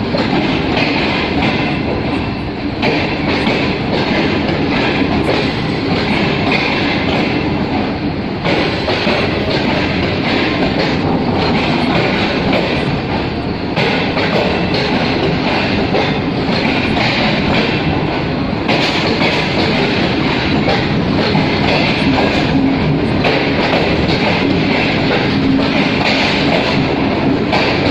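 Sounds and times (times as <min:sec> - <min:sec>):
clickety-clack of rail joints: 0:00.0 - 0:27.9
train wheels on track: 0:00.0 - 0:27.9.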